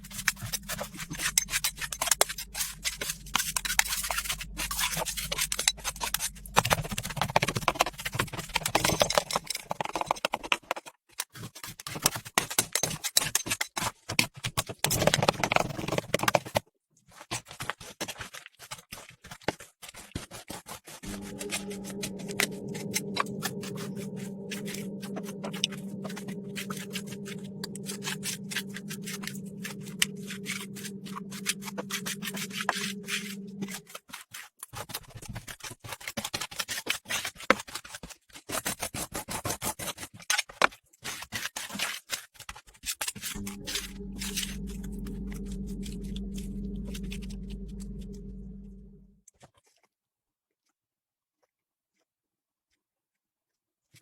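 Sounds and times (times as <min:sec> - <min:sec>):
machine hum: 0:00.0 - 0:09.6, 0:21.0 - 0:33.9, 0:43.4 - 0:49.2.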